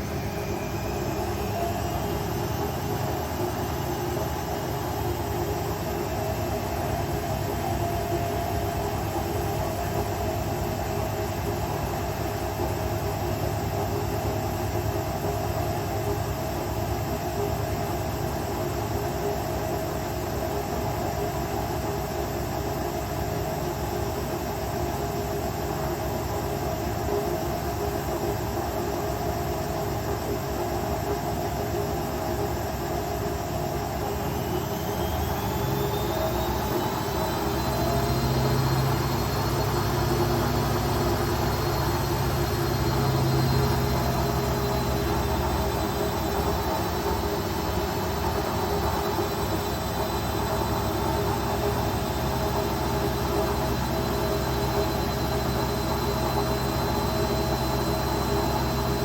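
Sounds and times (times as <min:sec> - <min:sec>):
faint rising whine: 0:00.0 - 0:11.5, 0:33.0 - 0:59.0
washing machine spinning: 0:00.0 - 0:59.0.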